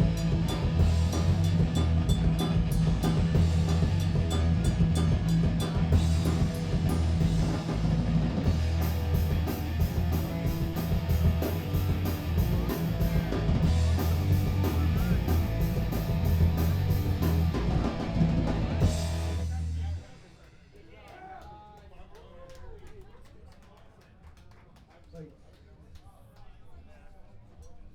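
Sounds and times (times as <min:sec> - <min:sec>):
bass guitar: 0:00.0 - 0:20.2
distorted electric guitar: 0:00.0 - 0:20.2
driving drum kit: 0:00.0 - 0:21.2.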